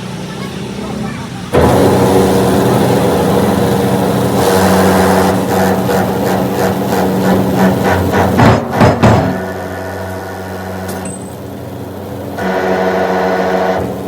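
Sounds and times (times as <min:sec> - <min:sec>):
machine motor running: 0:00.0 - 0:14.0.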